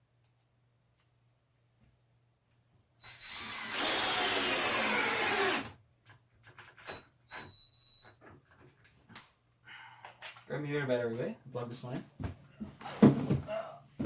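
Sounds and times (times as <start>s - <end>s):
cordless drill running: 3.0s - 5.8s.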